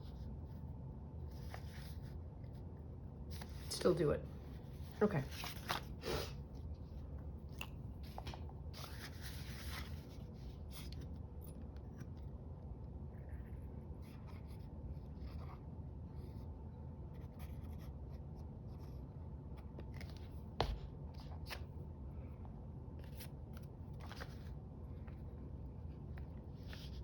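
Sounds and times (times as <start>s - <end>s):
paper rustling and scratching: 0.0s - 3.8s, 4.4s - 6.9s, 8.0s - 12.4s, 23.0s - 27.0s.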